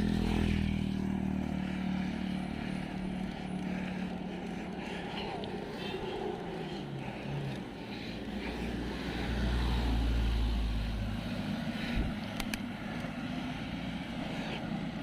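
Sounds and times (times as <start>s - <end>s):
motor vehicle passing: 0.0s - 15.0s
road and wind rumble: 0.0s - 15.0s
faint clicks: 12.4s - 13.1s.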